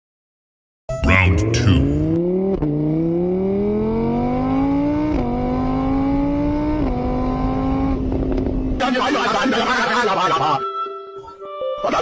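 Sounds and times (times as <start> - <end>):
motorbike engine accelerating: 1.4 - 8.8.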